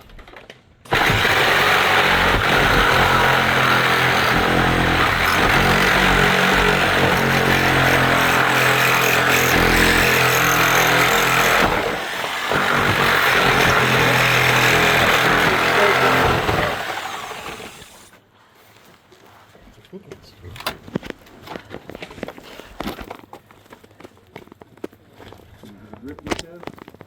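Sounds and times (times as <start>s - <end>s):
loud motor-driven tool running: 0.9s - 18.1s.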